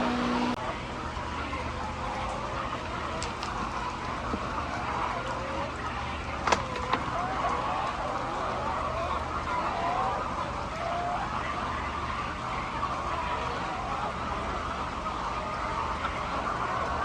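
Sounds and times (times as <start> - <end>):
low hum: 0.0 - 6.4
flock of chickens calling: 0.0 - 17.0.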